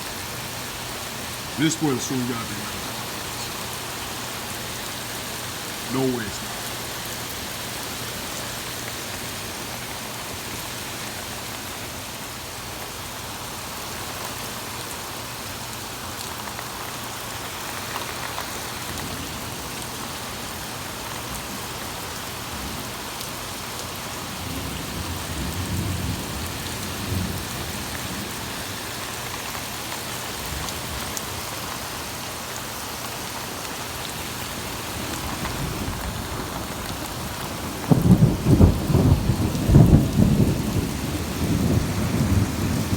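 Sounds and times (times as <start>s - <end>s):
torrential rain: 0.0s - 42.9s
low rumble of thunder: 24.4s - 27.8s, 35.3s - 42.9s.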